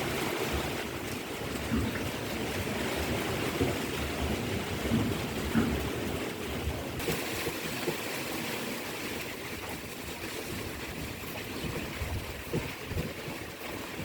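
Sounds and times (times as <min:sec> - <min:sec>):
wind buffeting microphone: 0:09.2 - 0:14.0.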